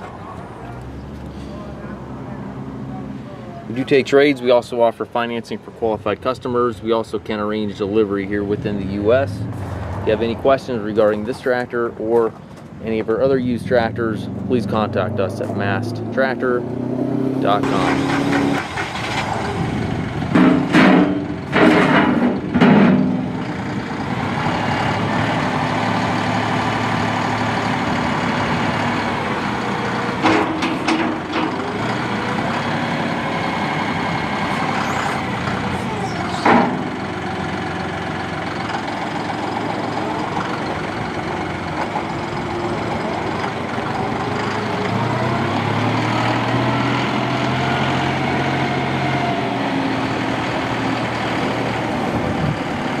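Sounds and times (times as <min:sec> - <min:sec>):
tractor diesel engine running: 0:06.6 - 0:15.8, 0:17.6 - 0:53.0
short loud noises: 0:34.3 - 0:37.2.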